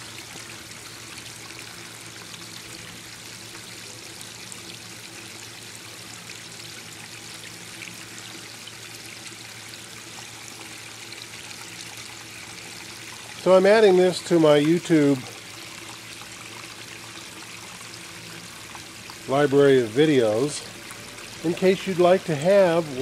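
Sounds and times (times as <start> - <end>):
water flowing over rocks: 6.2 - 23.0.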